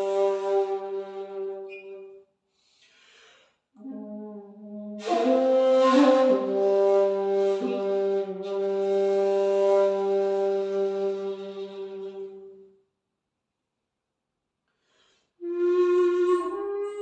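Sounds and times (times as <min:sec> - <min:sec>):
bamboo flute playing: 0:00.0 - 0:02.2, 0:03.8 - 0:12.7, 0:15.4 - 0:17.0.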